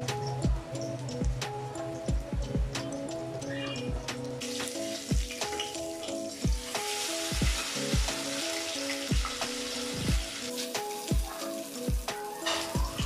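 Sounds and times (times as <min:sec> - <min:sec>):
background music with steady beat: 0:00.0 - 0:13.0
battered slices sizzling in oil: 0:04.4 - 0:13.0.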